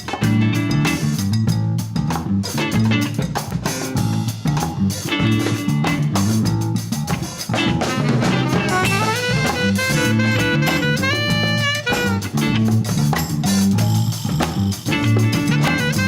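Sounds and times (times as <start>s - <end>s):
bass groove: 0.0s - 16.0s
drum kit: 0.0s - 16.0s
stepping melody line: 7.6s - 13.0s, 15.0s - 16.0s.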